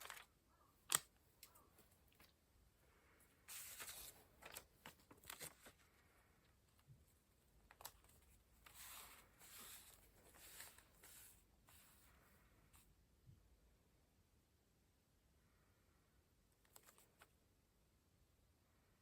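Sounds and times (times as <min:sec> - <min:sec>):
paper rustling: 0:00.0 - 0:02.4, 0:03.4 - 0:06.0, 0:07.6 - 0:12.9, 0:16.7 - 0:17.3.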